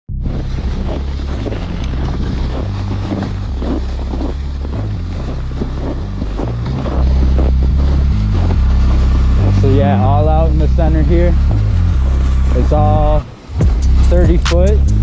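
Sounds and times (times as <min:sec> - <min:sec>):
wind buffeting microphone: 0:00.1 - 0:14.8.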